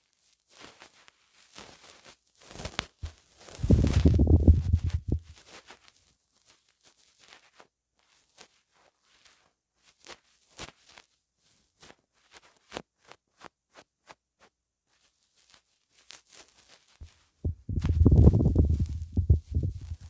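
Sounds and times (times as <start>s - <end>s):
crisp clicks and rustles: 0.5s - 11.1s
low rumble of microphone handling: 3.6s - 5.3s, 17.4s - 20.0s.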